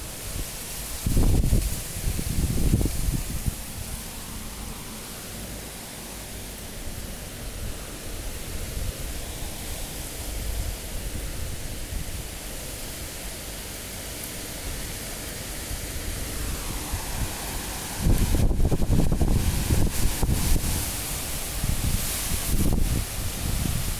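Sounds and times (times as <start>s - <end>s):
high wind rushing: 0.0s - 6.3s, 15.8s - 23.9s
wind buffeting microphone: 0.2s - 5.1s, 15.6s - 23.9s.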